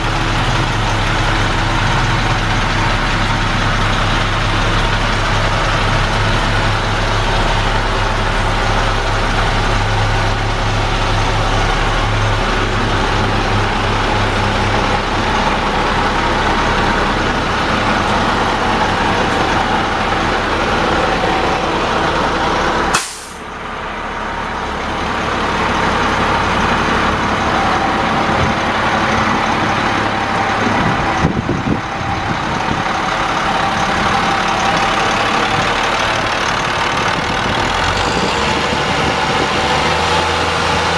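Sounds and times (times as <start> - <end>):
diesel truck engine running: 0.0 - 40.9
short sharp noise burst: 22.9 - 23.5.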